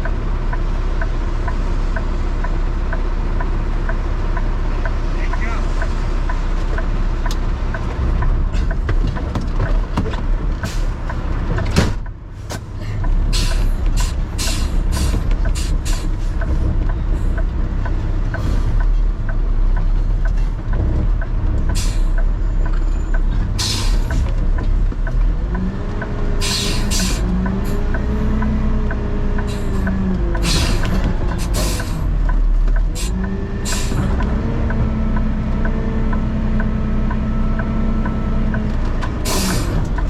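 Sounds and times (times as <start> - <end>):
garbage truck diesel engine: 0.0 - 40.0
even ticking: 13.0 - 40.0.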